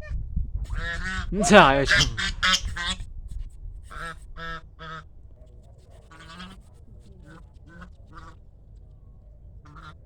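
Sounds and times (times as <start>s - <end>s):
geese honking: 0.7s - 3.0s, 3.9s - 5.1s, 6.0s - 8.4s, 9.7s - 10.0s.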